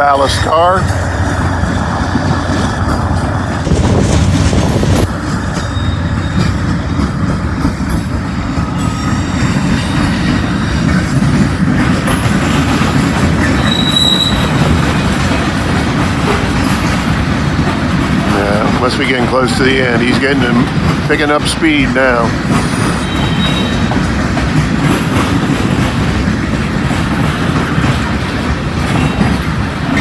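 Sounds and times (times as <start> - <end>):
freight train wheels rumbling on rail: 0.0 - 30.0
high wheel squeals: 5.4 - 7.2, 13.4 - 15.0, 22.5 - 24.1.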